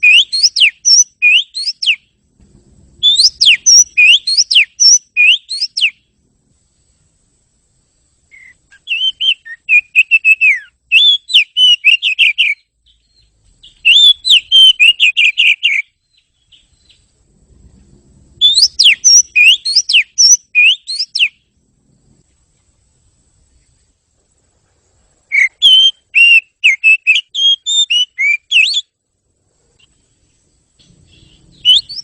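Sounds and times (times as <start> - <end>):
bird singing whistled trills: 0.0 - 2.2, 3.0 - 6.1, 8.3 - 17.2, 18.4 - 21.5, 25.3 - 29.0, 29.8 - 32.0.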